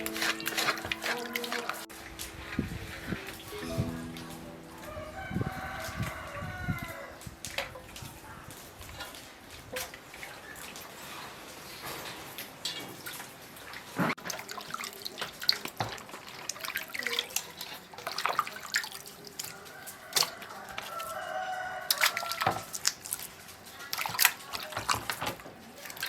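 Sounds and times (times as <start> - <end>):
rooster crowing: 4.8 - 7.4, 19.7 - 22.7
water drips and splashes: 5.2 - 26.0.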